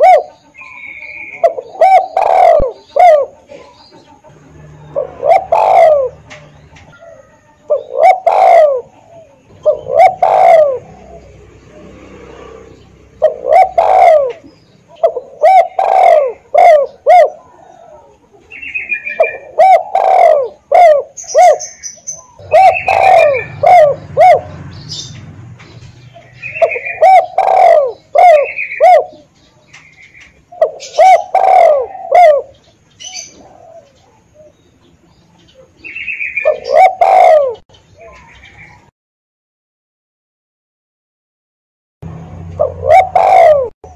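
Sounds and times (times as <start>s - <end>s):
dove cooing: 0.0s - 38.9s, 42.4s - 43.9s
high bird chirps: 20.5s - 34.0s.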